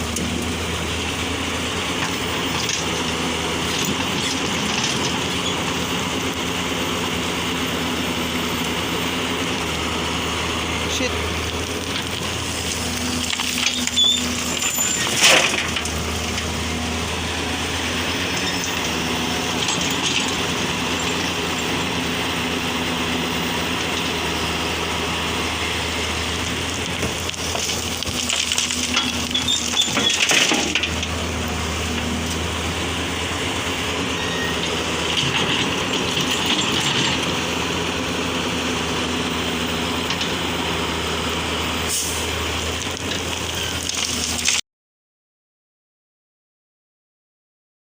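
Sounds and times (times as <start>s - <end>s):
heavy diesel machinery running: 0.0s - 44.6s
soil dropping into dump truck: 11.4s - 38.2s, 41.8s - 44.6s.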